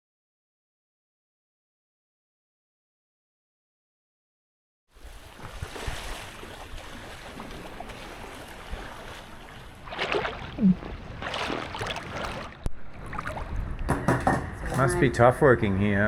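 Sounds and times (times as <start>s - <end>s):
water rushing around boat: 4.9s - 15.4s
wind: 4.9s - 16.0s.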